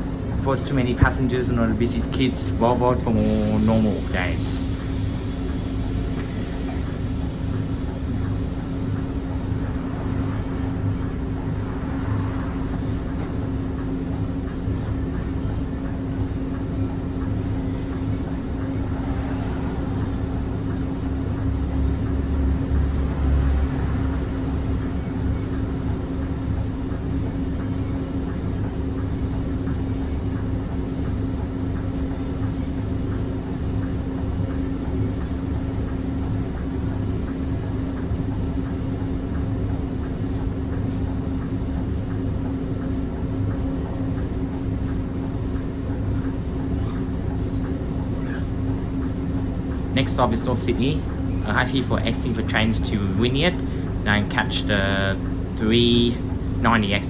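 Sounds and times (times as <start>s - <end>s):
bus engine drone: 0.0s - 57.0s
road rumble: 4.1s - 28.2s.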